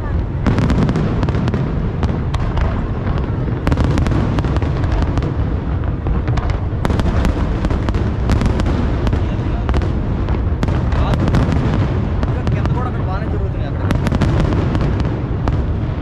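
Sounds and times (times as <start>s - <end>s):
fireworks cracks and crackles: 0.0s - 16.0s.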